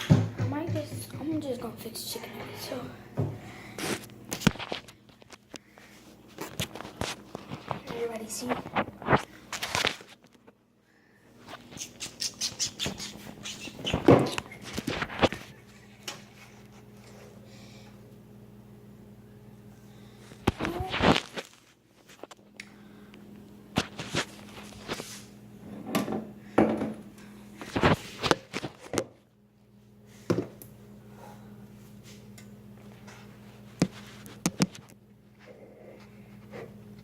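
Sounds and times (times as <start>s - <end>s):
low appliance hum: 0.0s - 37.0s.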